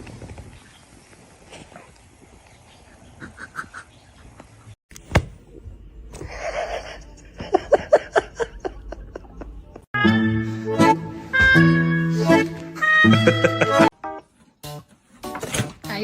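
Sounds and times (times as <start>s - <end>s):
person laughing: 6.2s - 9.9s, 13.0s - 13.9s.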